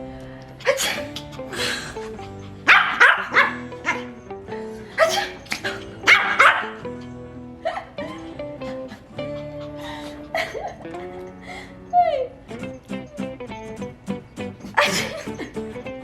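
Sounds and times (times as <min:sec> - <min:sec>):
small dog yapping: 0:00.6 - 0:04.2, 0:05.0 - 0:06.8.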